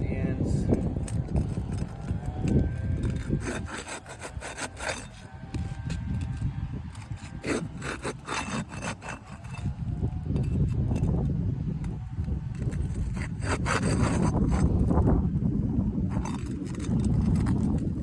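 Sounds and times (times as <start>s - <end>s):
scraping on roof shingles: 1.0s - 9.8s, 12.5s - 15.0s.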